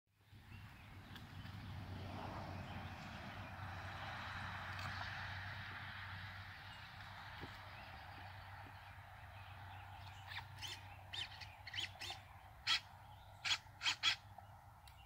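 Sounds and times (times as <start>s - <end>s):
birds calling: 6.4s - 15.0s.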